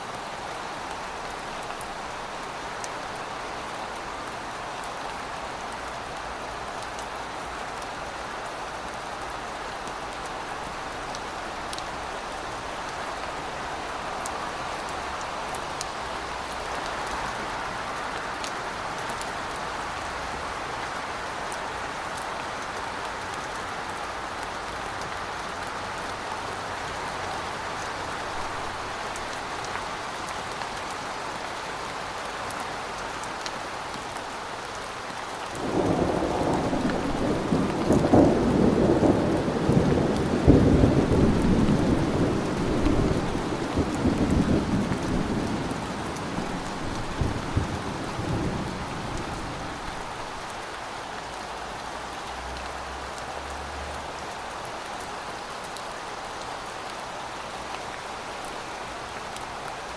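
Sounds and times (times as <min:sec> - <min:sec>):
rain hissing: 0:35.6 - 0:51.4.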